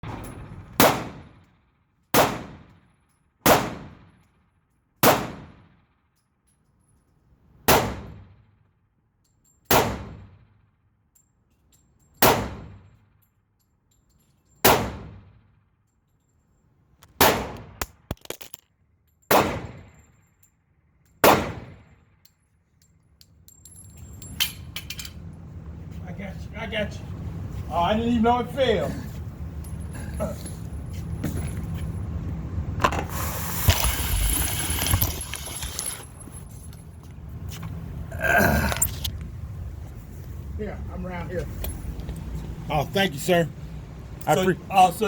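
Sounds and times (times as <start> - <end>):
pistol shots with ringing echo: 0.8 - 1.4, 2.1 - 2.8, 3.4 - 4.2, 5.0 - 5.8, 7.7 - 8.5, 9.7 - 10.5, 12.2 - 12.9, 14.6 - 15.5, 17.2 - 18.1, 19.3 - 20.1, 21.2 - 22.0
small metallic clicks and clinks: 2.7 - 3.4, 5.8 - 7.4, 8.5 - 9.7, 10.4 - 12.2, 12.8 - 14.7, 15.3 - 17.2, 17.9 - 21.2, 21.8 - 25.3.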